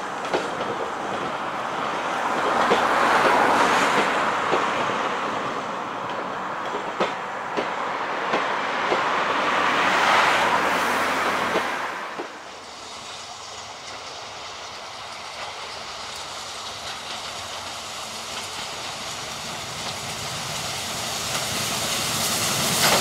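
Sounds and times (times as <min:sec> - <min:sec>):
train rolling rush: 0:00.0 - 0:23.0
train wheels clicking over rail joints: 0:00.0 - 0:23.0.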